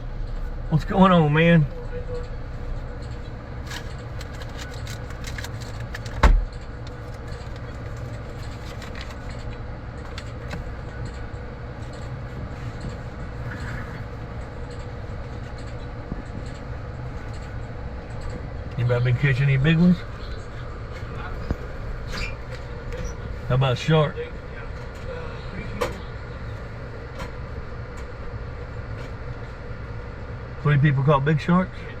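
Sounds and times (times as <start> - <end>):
vehicle engine idling: 0.0 - 32.0
light clicks and rattles: 14.4 - 18.8.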